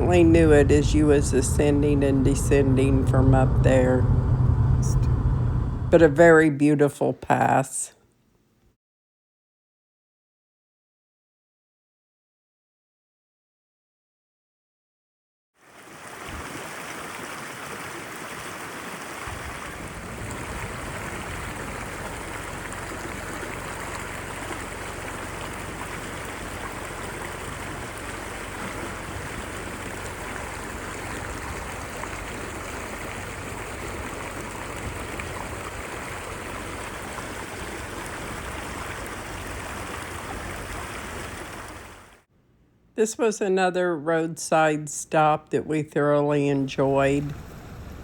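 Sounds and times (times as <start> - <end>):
deep rumble: 0.0 - 6.4, 19.3 - 42.1
stream water rushing: 15.6 - 42.3.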